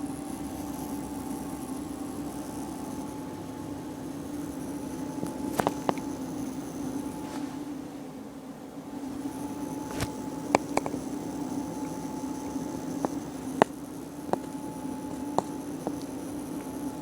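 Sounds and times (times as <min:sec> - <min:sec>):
water pump humming and whining: 0:00.0 - 0:07.7, 0:08.8 - 0:17.0
sharp clicks and ticks: 0:09.9 - 0:11.1, 0:11.7 - 0:16.9.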